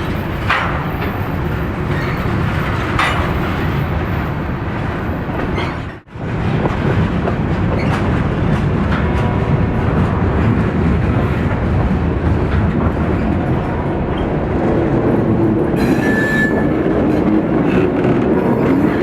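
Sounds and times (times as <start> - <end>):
train wheels rumbling on rails: 0.0 - 19.0
wheel squeal: 15.8 - 17.3.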